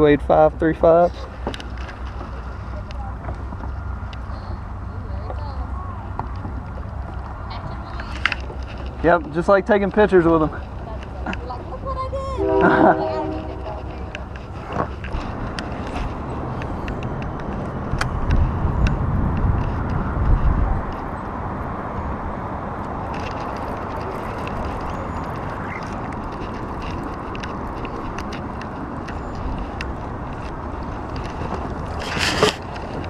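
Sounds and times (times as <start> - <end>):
wind buffeting microphone: 10.2 - 33.0.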